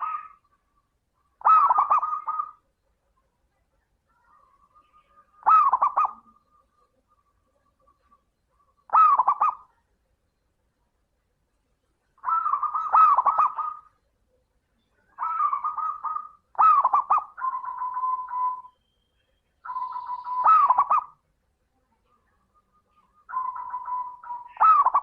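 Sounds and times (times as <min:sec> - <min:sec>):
dove cooing: 0:00.0 - 0:00.5, 0:01.4 - 0:02.7, 0:04.3 - 0:07.2, 0:07.8 - 0:09.8, 0:12.2 - 0:14.0, 0:15.1 - 0:18.7, 0:19.6 - 0:21.2, 0:22.8 - 0:25.0.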